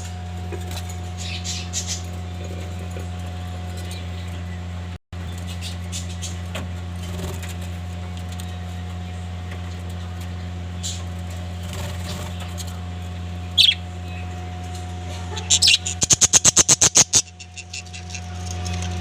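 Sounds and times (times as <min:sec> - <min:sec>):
steady low hum: 0:00.0 - 0:19.0
budgerigars chirping: 0:01.2 - 0:02.1, 0:13.4 - 0:14.3, 0:15.3 - 0:19.0.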